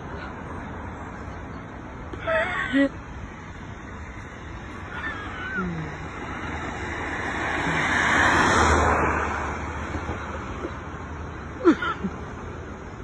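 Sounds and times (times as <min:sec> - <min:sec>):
vehicle passing by: 0:03.3 - 0:11.5.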